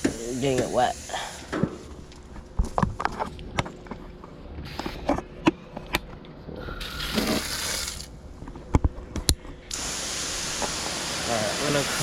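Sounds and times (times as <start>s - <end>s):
water spraying: 0.0s - 1.9s, 6.8s - 8.1s, 9.7s - 12.0s.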